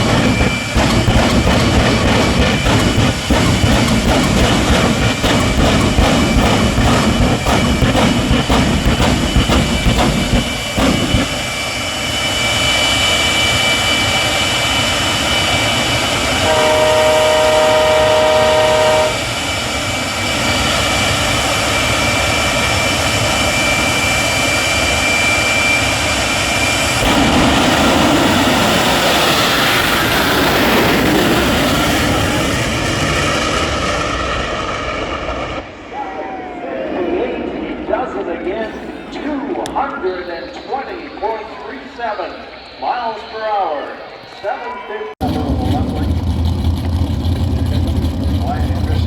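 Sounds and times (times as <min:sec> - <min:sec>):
jet turbine engine roaring: 0:00.0 - 0:49.0
horn sounding: 0:16.2 - 0:19.4.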